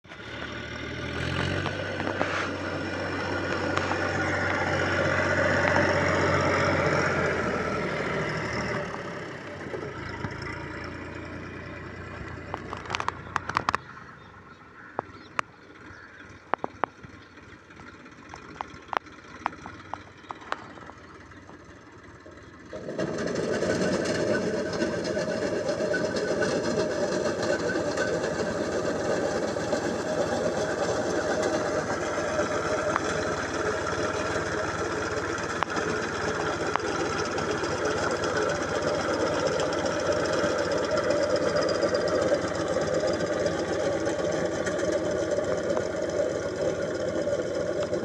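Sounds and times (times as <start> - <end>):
harvester engine running: 0.0 - 48.0
sharp clicks: 12.5 - 13.9.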